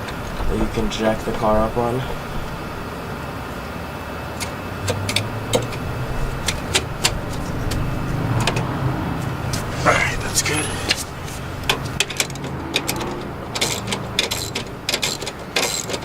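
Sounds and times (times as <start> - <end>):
car jack metallic clicks: 4.4 - 16.0
low rumble: 5.1 - 14.9.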